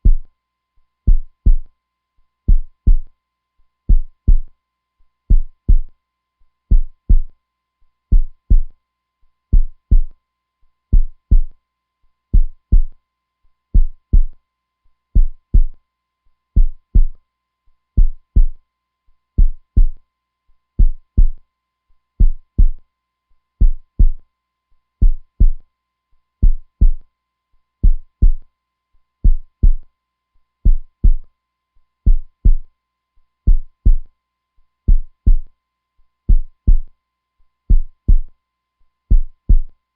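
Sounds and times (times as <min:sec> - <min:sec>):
heartbeat thumps: 0:00.0 - 0:00.3, 0:01.1 - 0:01.7, 0:02.5 - 0:03.1, 0:03.9 - 0:04.5, 0:05.3 - 0:05.9, 0:06.7 - 0:07.3, 0:08.1 - 0:08.7, 0:09.5 - 0:10.1, 0:10.9 - 0:11.5, 0:12.4 - 0:12.9, 0:13.8 - 0:14.3, 0:15.2 - 0:15.8, 0:16.6 - 0:17.2, 0:18.0 - 0:18.6, 0:19.4 - 0:20.0, 0:20.8 - 0:21.4, 0:22.2 - 0:22.8, 0:23.6 - 0:24.2, 0:25.0 - 0:25.6, 0:26.4 - 0:27.0, 0:27.8 - 0:28.4, 0:29.2 - 0:29.8, 0:30.7 - 0:31.2, 0:32.1 - 0:32.7, 0:33.5 - 0:34.1, 0:34.9 - 0:35.5, 0:36.3 - 0:36.9, 0:37.7 - 0:38.3, 0:39.1 - 0:39.7.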